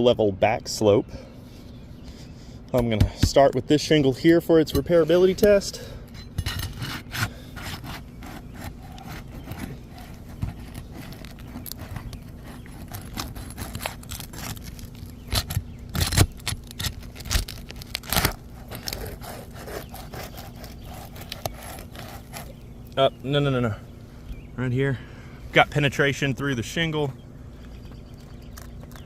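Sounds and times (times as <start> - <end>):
tool scraping under roof shingle: 4.7 - 23.4
shingle cracking: 6.6 - 23.4.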